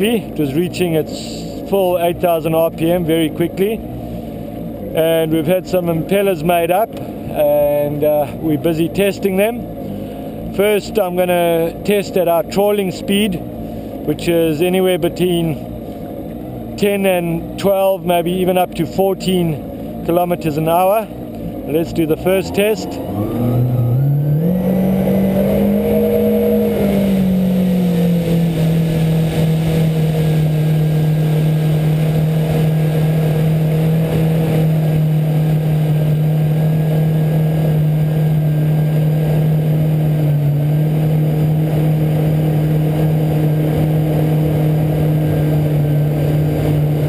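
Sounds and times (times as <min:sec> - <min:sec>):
jet ski engine: 0:00.0 - 0:47.0.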